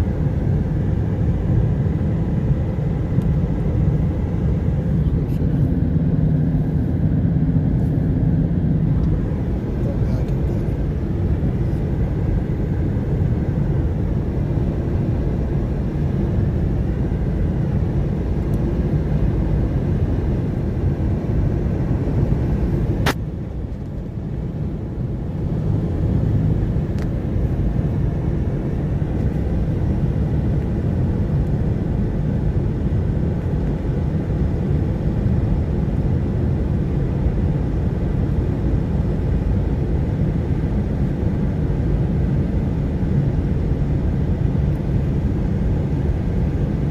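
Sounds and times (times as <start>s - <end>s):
car road and engine rumble: 0.0s - 46.9s.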